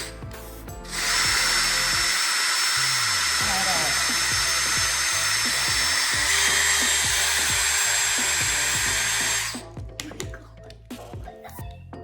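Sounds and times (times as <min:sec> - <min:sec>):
electric drill whining: 0:00.9 - 0:09.6.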